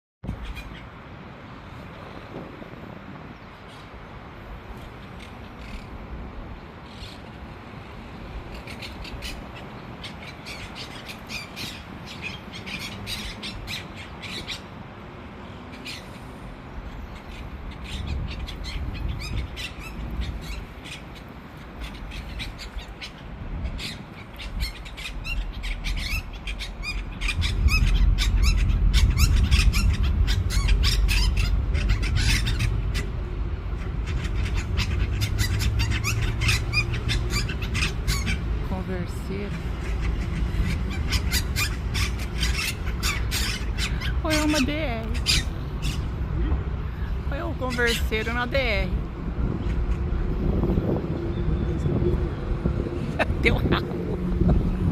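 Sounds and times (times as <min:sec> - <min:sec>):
parakeets chattering and squawking: 0:08.4 - 0:14.8, 0:16.9 - 0:49.0
low rumble: 0:25.4 - 0:35.1.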